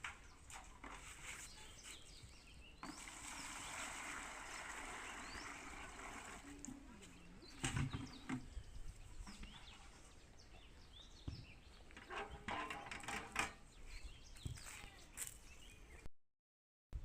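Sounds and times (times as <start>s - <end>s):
bird chirps: 1.2s - 3.1s, 7.0s - 13.0s, 13.6s - 16.1s.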